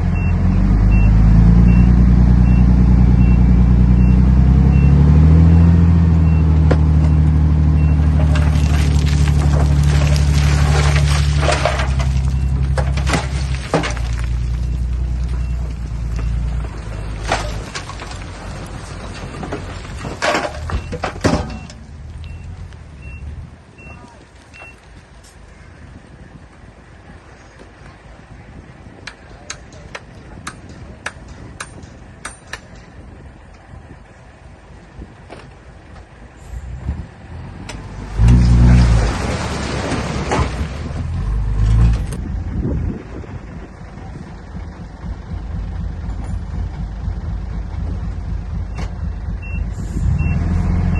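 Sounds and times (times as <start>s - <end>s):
heavy machinery engine rumble: 0.0s - 50.9s
reversing alarm beeping: 0.2s - 5.6s, 49.4s - 50.5s.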